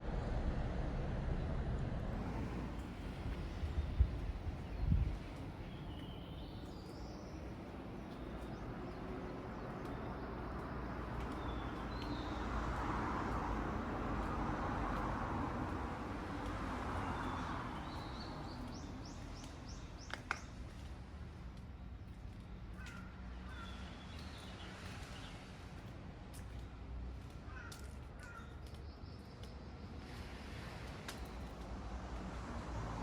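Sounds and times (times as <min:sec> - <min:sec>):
sea waves washing onto beach: 0:02.2 - 0:20.8, 0:29.9 - 0:33.0
small birds chirping: 0:02.4 - 0:15.0, 0:15.7 - 0:20.9.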